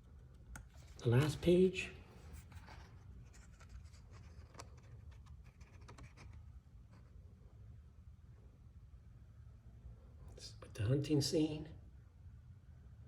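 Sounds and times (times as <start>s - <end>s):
low steady hum: 0.0s - 13.0s
paper pages rustling: 2.1s - 6.4s.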